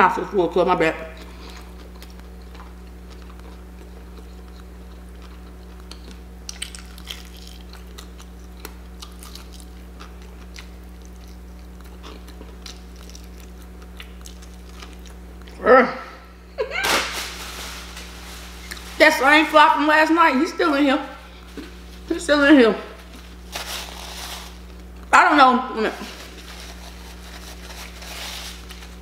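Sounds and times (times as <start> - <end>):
steady low hum: 0.0 - 29.0
person chewing: 1.2 - 15.6, 18.4 - 19.0.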